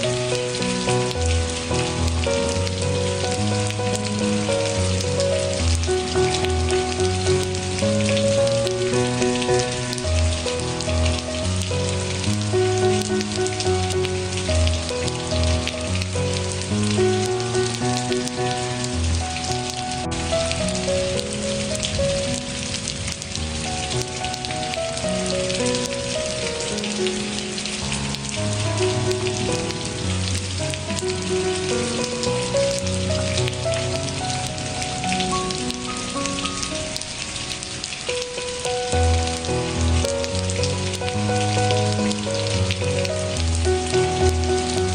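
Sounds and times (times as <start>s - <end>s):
gentle melodic music: 0.0s - 44.9s
rain pattering: 0.0s - 44.9s.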